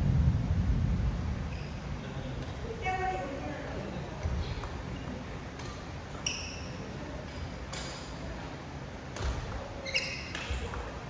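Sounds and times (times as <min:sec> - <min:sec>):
shoes squeaking on floor: 0:06.1 - 0:07.5, 0:09.5 - 0:10.9.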